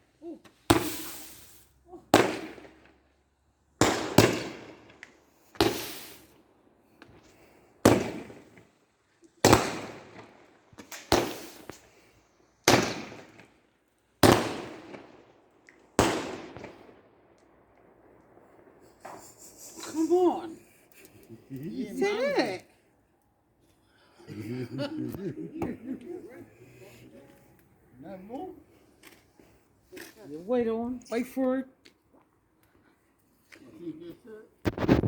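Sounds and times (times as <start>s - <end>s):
fireworks bangs: 0.7s - 3.0s, 3.8s - 6.4s, 7.0s - 8.8s, 9.4s - 13.6s, 14.2s - 20.7s.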